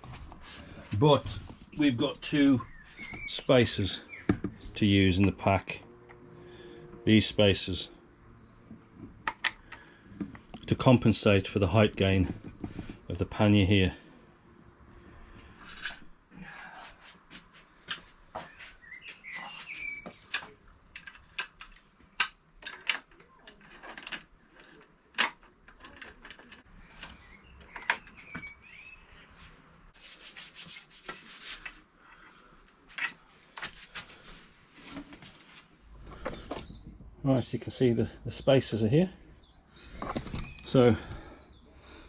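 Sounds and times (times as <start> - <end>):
metal parts clicking and knocking: 20.3 - 26.7.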